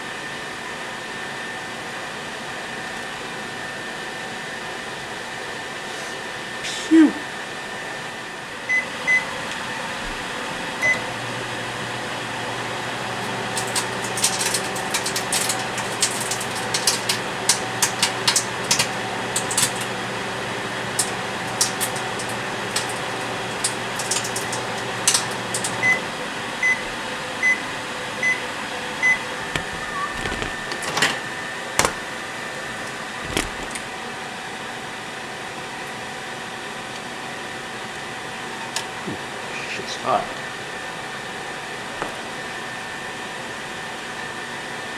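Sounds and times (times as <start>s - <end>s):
microwave oven humming: 0.0s - 44.9s
microwave keypad beeps: 8.7s - 9.3s, 10.8s - 11.1s, 25.8s - 26.0s, 26.6s - 26.8s, 27.4s - 27.6s, 28.2s - 28.4s, 29.0s - 30.5s
microwave end-of-cycle beeps: 8.7s - 9.4s, 10.8s - 31.2s
disc arcing with sharp snaps: 13.2s - 25.9s, 29.5s - 31.2s, 32.9s - 33.9s.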